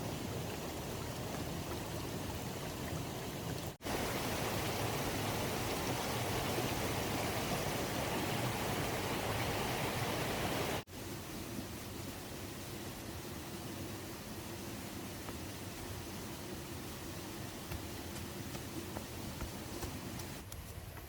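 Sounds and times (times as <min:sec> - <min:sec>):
running water rushing: 0:00.0 - 0:20.4.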